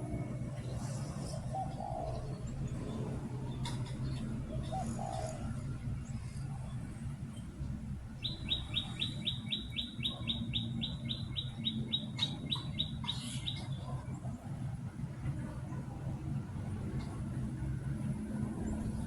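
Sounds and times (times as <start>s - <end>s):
low steady hum: 0.0s - 19.0s
small bird chirping: 8.2s - 13.8s.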